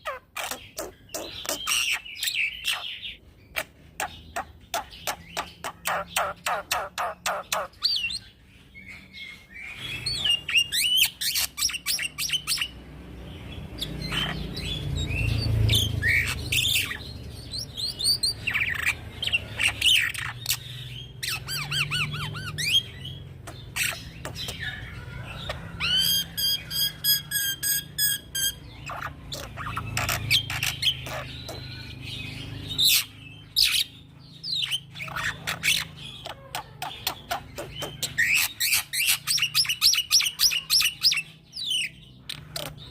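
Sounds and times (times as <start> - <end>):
starling singing varied song: 8.9 - 42.9.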